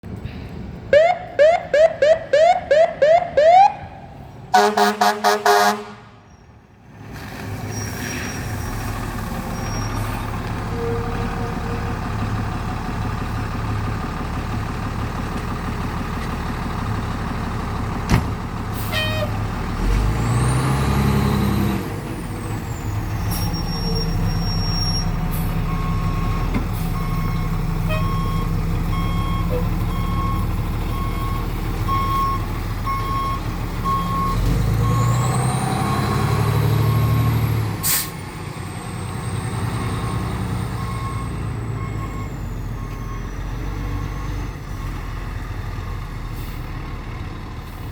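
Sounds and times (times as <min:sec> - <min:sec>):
fire truck engine running: 0:09.0 - 0:20.2, 0:21.8 - 0:47.9.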